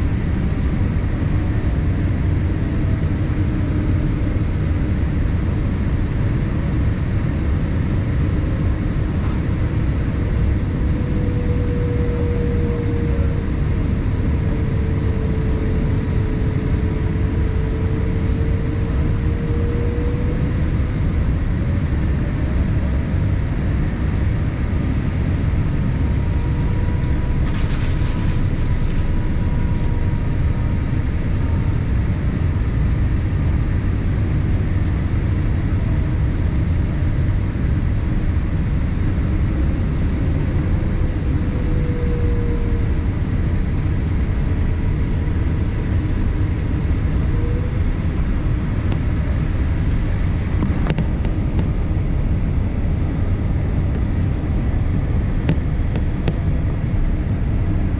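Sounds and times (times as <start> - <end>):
airliner cabin rumble: 0.0 - 57.9.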